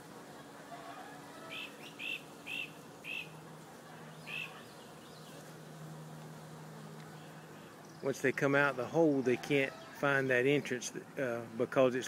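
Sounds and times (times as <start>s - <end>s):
honeybees buzzing: 0.0s - 12.0s
small bird chirping: 1.5s - 3.4s, 4.2s - 5.4s.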